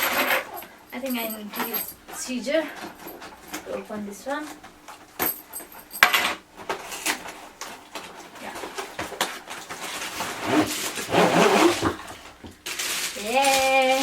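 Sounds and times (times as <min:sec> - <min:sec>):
packaging scraping rustle: 0:09.8 - 0:13.2.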